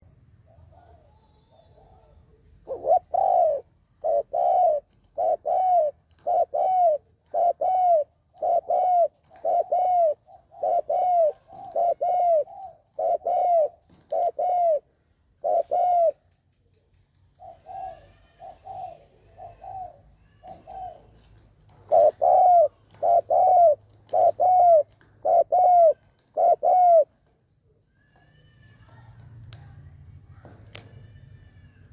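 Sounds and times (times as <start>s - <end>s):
dove cooing: 0.7s - 16.3s, 17.4s - 27.3s.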